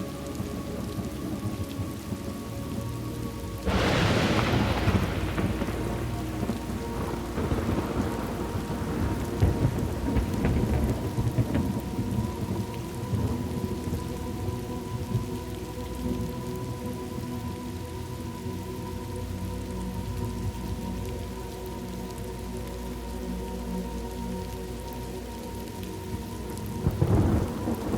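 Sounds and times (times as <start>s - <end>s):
rain hissing: 0.0s - 27.9s
low rumble of thunder: 0.3s - 17.6s, 26.0s - 27.9s
sharp thunderclap: 3.7s - 12.2s.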